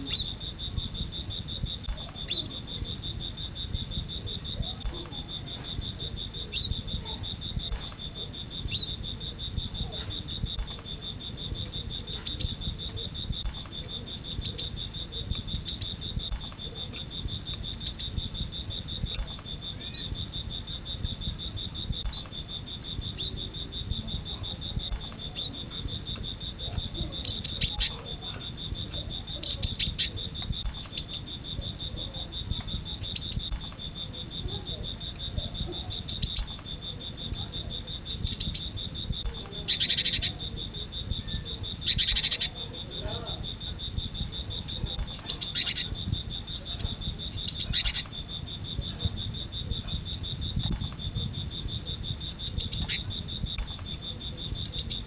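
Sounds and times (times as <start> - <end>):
bird high sharp calls: 0.0 - 0.8, 1.4 - 3.0, 4.0 - 18.3, 19.0 - 23.7, 41.2 - 43.6, 44.5 - 48.2
insect trill: 0.0 - 55.0
bird harsh rasping calls: 4.2 - 16.1, 26.6 - 28.5.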